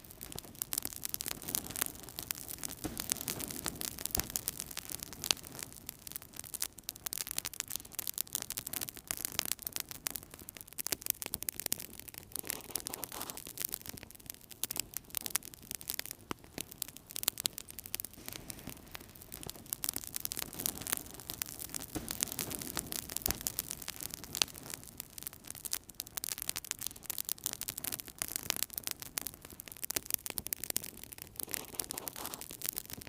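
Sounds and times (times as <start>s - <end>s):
wood fire crackling and popping: 0.0s - 33.0s.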